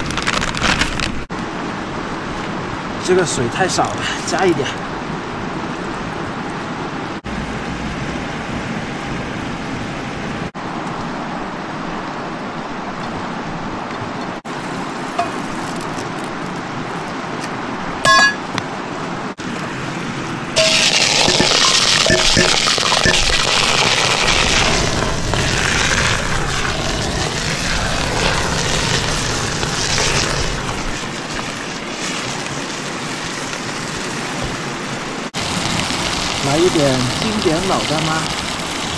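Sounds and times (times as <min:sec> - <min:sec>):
cooking sizzle: 0:14.5 - 0:16.6, 0:20.6 - 0:38.9
broth boiling: 0:14.5 - 0:18.5, 0:20.5 - 0:38.9
ringing metal clink: 0:18.1 - 0:18.5
cooking stove hissing: 0:20.6 - 0:38.9.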